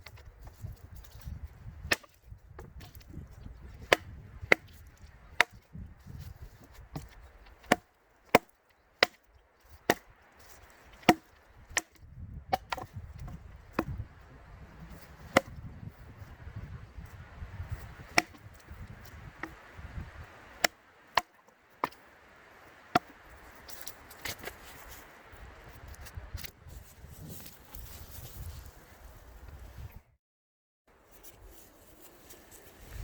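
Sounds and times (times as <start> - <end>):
maul chopping logs: 0.0 - 14.2, 14.9 - 16.2, 17.0 - 22.1, 22.8 - 24.8.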